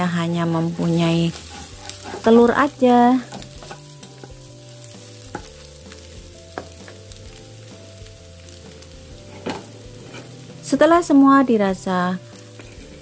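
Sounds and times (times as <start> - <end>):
food sizzling in oil: 0.0 - 13.0
spatula stirring and scraping: 0.4 - 7.2, 8.8 - 10.8, 12.4 - 13.0.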